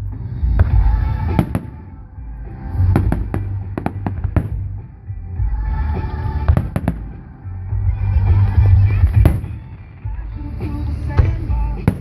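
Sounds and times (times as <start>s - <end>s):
music playing: 0.0s - 12.0s
fireworks bangs and crackles: 2.9s - 5.0s, 6.4s - 7.3s, 9.0s - 12.0s.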